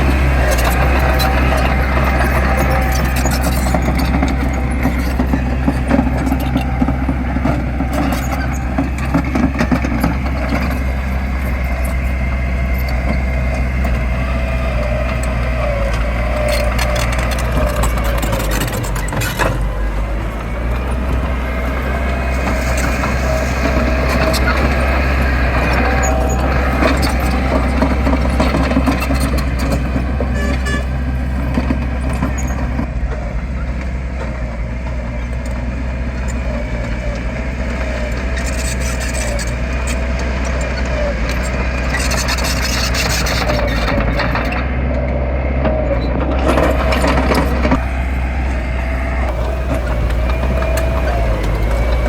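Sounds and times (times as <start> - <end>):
wavering whine: 0.0 - 30.3, 46.7 - 52.0
diesel engine drone: 0.0 - 52.0.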